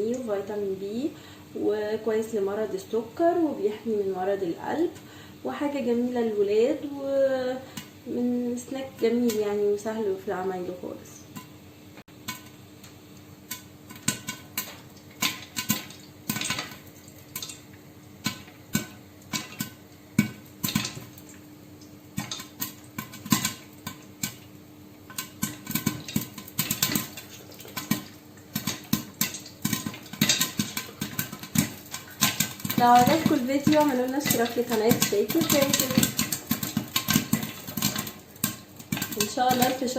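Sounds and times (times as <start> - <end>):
popcorn popping in a pot: 5.8 - 39.9.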